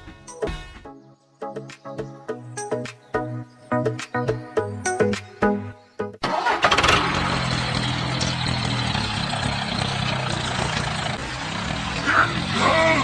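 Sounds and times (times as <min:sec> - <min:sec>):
background music: 0:00.0 - 0:06.6
small engine running: 0:06.4 - 0:13.0.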